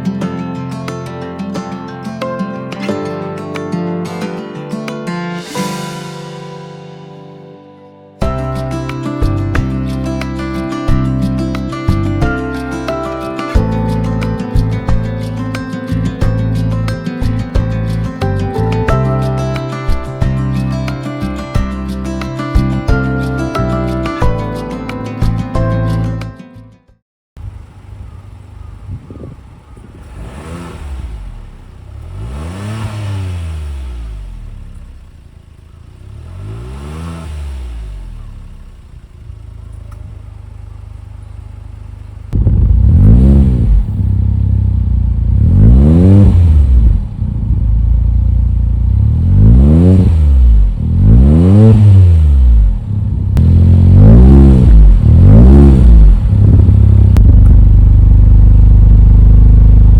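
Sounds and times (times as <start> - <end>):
car engine revving and idling: 27.4 - 59.9.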